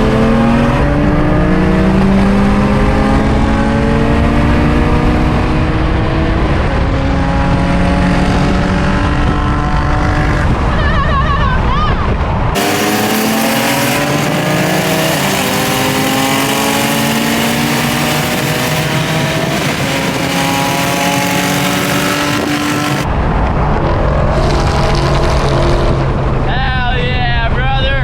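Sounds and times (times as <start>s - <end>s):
car engine accelerating: 0.0s - 10.7s, 12.5s - 26.7s
wind and tyre hiss: 5.0s - 27.3s.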